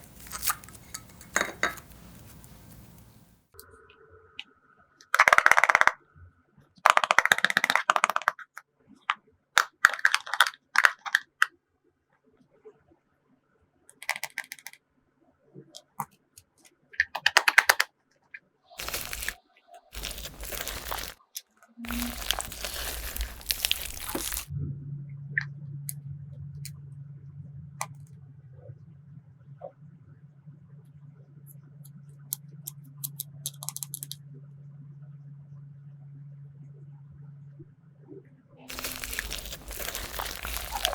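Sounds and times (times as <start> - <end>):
slime squishing with wet pops: 0.0 - 3.3, 18.8 - 21.3, 21.9 - 24.5, 38.7 - 40.9
crinkly rustling: 0.0 - 3.4, 18.8 - 24.5, 38.7 - 40.9
low steady hum: 21.8 - 33.2.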